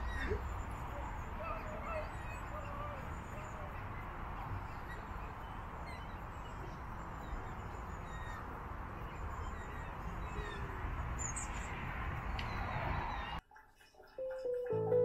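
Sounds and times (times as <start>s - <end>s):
birds chirping and calling: 0.0s - 11.8s.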